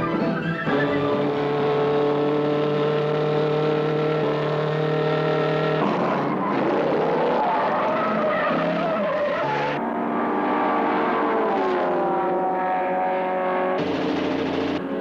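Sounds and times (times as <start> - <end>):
tires skidding with squeal: 0.0 - 2.2, 4.2 - 13.0
car engines running: 0.0 - 15.0.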